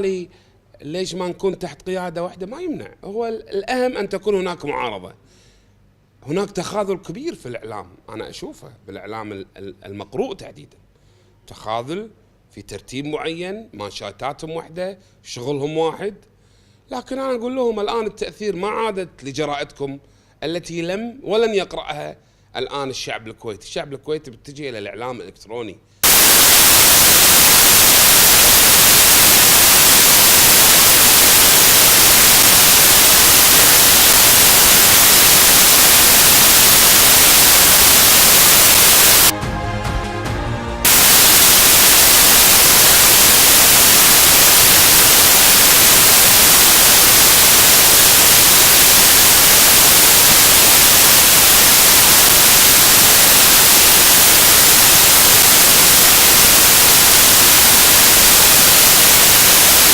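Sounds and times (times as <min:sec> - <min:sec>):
loud static hiss: 0:00.0 - 0:00.3, 0:26.0 - 0:39.4, 0:40.8 - 0:59.9.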